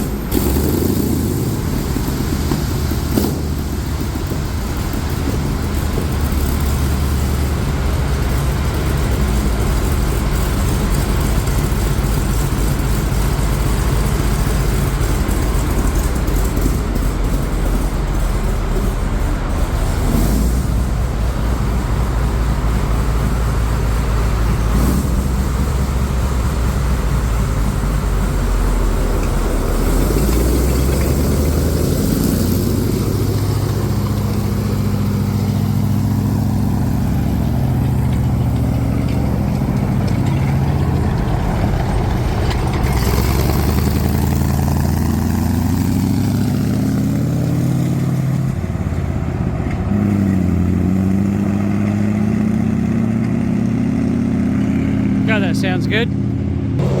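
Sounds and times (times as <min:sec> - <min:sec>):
tank engine revving: 0:00.0 - 0:57.0.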